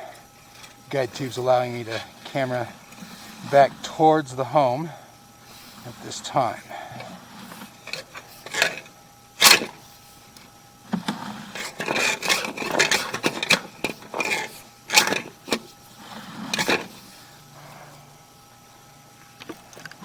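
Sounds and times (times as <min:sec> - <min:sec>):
push rod scraping in tube: 0:07.0 - 0:09.7.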